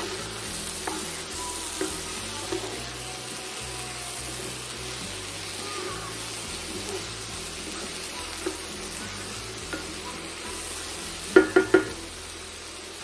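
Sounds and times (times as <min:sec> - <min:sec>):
vegetables sizzling in a skillet: 0:00.0 - 0:13.0
spoon knocking against pan: 0:00.8 - 0:01.2, 0:01.8 - 0:02.8, 0:09.7 - 0:10.6, 0:11.3 - 0:12.0.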